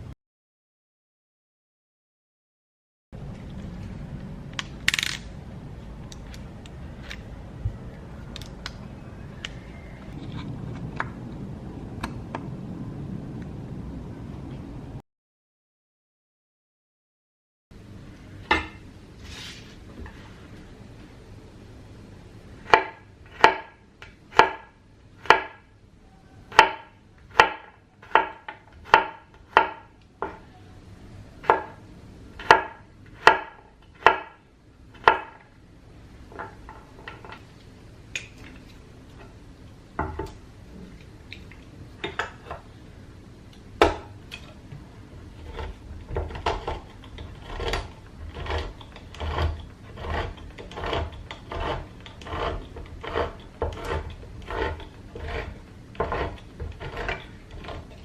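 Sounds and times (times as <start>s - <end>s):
knife chopping on wooden board: 22.7s - 25.6s, 26.5s - 30.4s, 32.4s - 34.4s, 45.5s - 57.8s.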